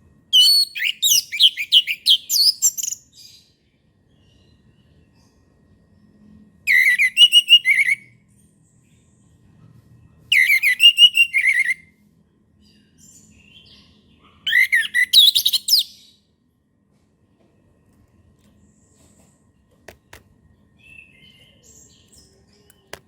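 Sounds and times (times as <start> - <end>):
thrush whistling song: 6.7 - 8.2, 10.3 - 11.9, 14.5 - 16.0.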